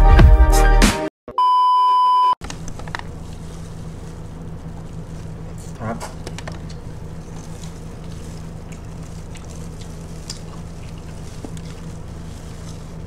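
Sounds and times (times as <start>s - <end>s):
steady low hum: 2.4s - 13.0s
chewing fried chicken: 2.9s - 13.0s.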